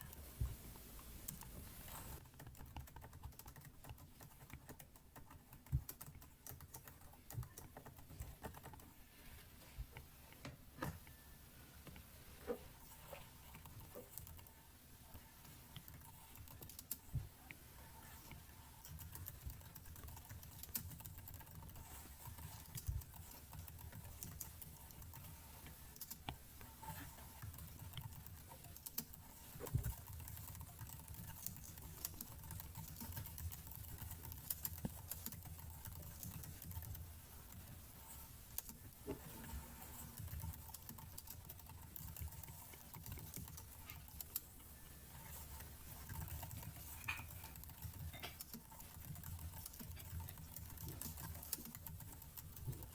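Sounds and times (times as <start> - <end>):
keyboard keys clicking: 0.1 - 8.9.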